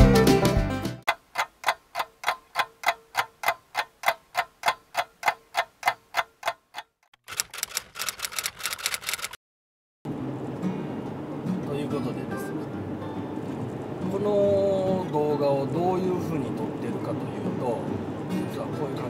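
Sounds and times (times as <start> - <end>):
fast dense clicks: 1.1 - 9.4
steady ticking: 1.1 - 9.4.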